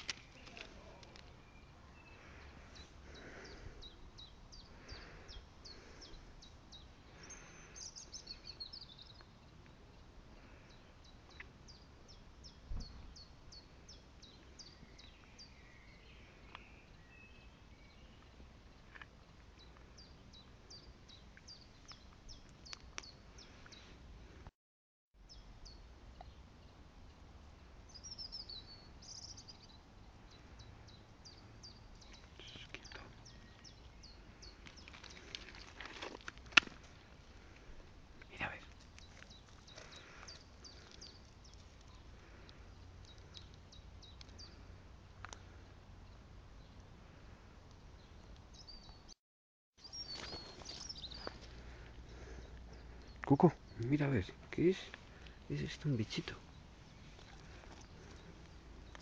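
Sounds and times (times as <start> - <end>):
small birds chirping: 0.0 - 24.5, 25.2 - 49.2, 49.8 - 59.0.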